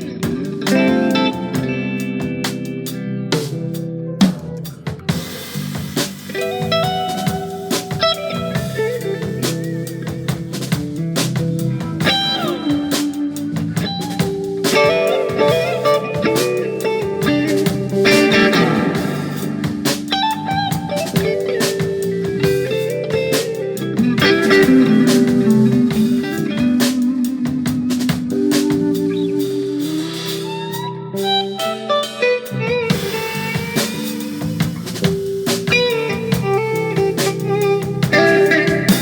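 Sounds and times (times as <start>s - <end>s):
electric guitar: 0.0s - 39.0s
jazz fusion band playing: 0.0s - 39.0s.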